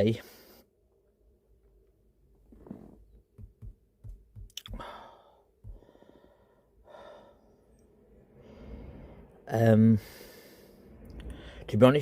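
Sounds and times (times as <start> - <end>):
soft low knocks: 3.3 - 4.6
man sighing and breathing out: 4.6 - 6.2.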